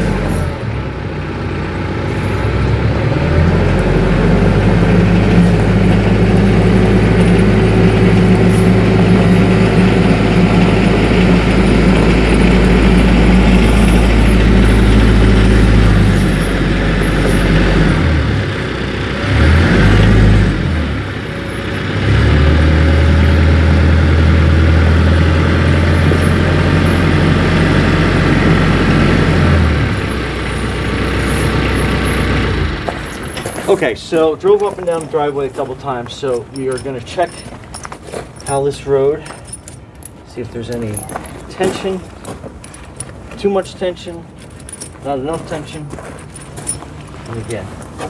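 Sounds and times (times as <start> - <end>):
tractor diesel engine running: 0.0 - 48.0
tractor driving on snow chains: 0.0 - 48.0.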